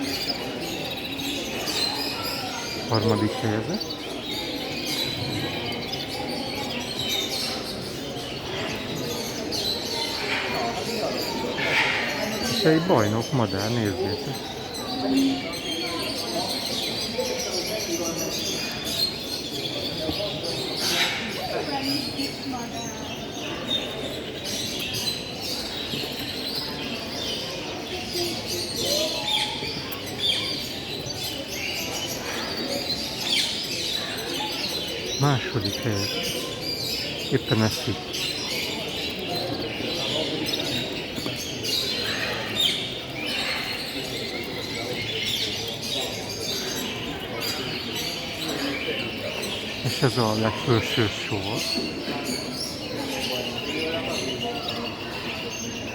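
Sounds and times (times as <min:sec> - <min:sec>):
caged birds chirping: 0:00.0 - 0:55.9
steady background din: 0:49.8 - 0:51.8.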